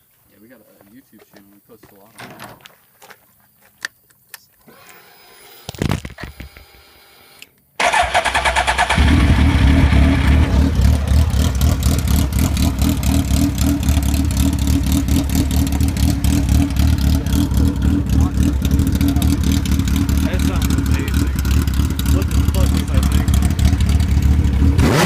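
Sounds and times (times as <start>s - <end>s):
motorcycle engine idling loudly: 8.8s - 24.9s.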